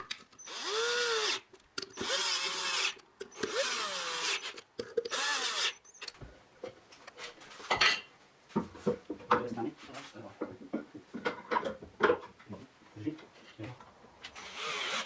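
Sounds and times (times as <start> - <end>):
power drill motor whine: 0.0 - 6.2, 14.4 - 15.0.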